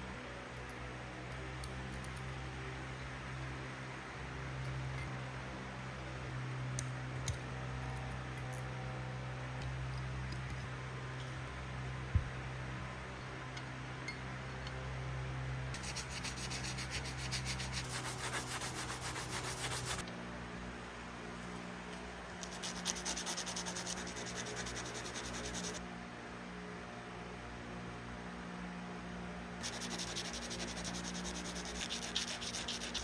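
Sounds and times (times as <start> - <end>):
hand sanding strokes: 15.8 - 20.0, 22.4 - 25.8, 29.6 - 33.0.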